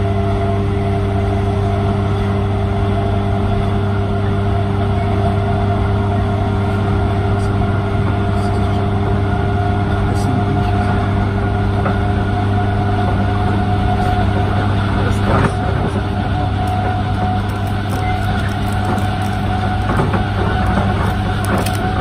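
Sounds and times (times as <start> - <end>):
traction motor hum: 0.0 - 22.0
train wheels rumbling on track: 0.0 - 22.0.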